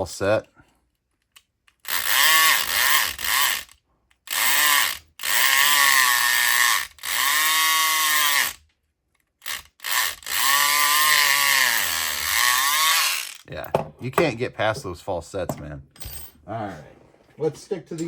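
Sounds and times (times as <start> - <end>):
electric lock pick gun buzzing: 1.8 - 8.6, 9.4 - 13.5.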